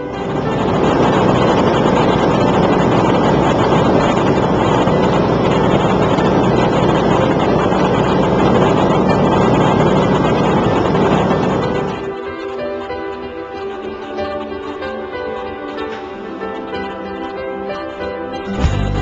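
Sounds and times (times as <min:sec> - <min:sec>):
wind rushing over microphone: 0:00.0 - 0:12.1
light aircraft engine and propeller: 0:00.0 - 0:17.5.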